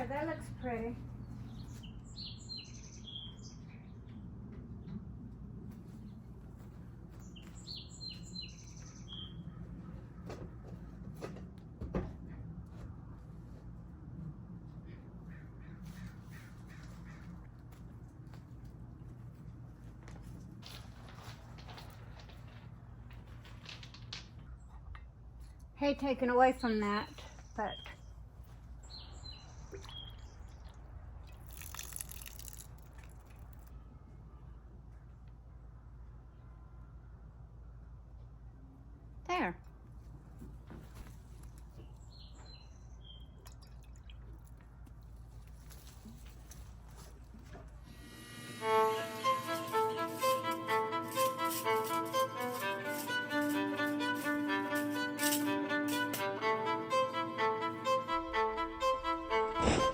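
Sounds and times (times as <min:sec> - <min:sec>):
small birds chirping: 0:00.2 - 0:04.2, 0:07.1 - 0:10.0, 0:26.4 - 0:30.8, 0:41.6 - 0:43.6
steady low rumble: 0:57.0 - 0:59.9.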